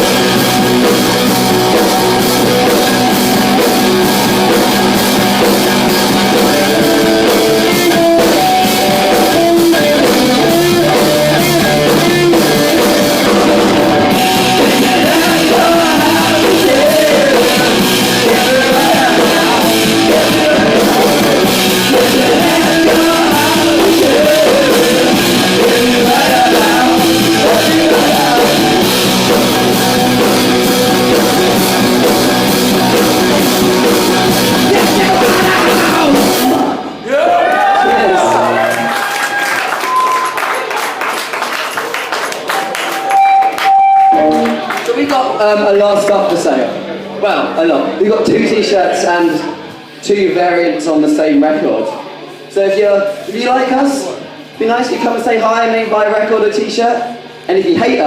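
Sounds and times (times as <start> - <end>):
drum kit: 0.0 - 37.0
electric guitar: 0.0 - 41.4, 42.3 - 48.0
person singing: 6.4 - 30.4, 34.5 - 36.8.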